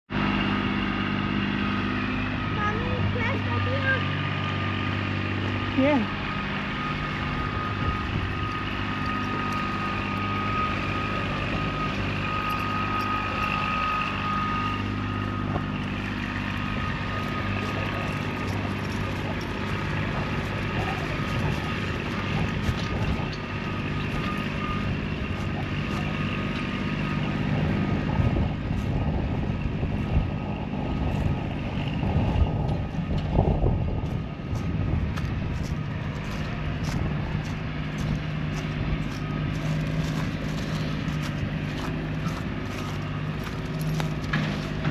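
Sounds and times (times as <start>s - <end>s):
tractor diesel engine running: 0.0s - 44.9s
rattling and clanking: 14.9s - 44.9s.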